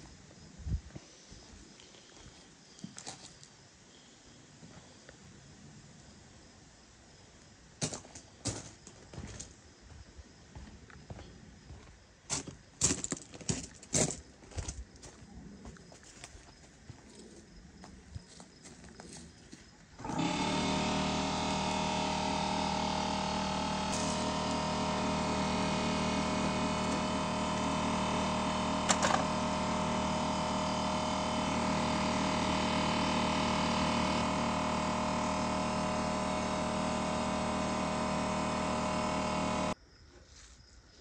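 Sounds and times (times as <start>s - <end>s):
motor-driven machine running: 19.9s - 39.8s.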